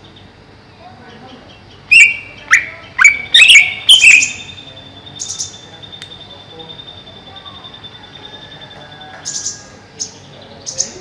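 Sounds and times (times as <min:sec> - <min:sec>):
bird calling sharp notes: 0:01.8 - 0:08.1.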